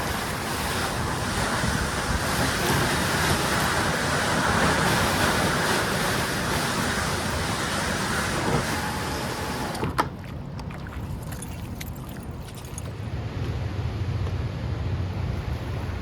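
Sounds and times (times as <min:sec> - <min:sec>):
wind on microphone: 0:00.0 - 0:09.8
river water flowing: 0:00.0 - 0:13.2.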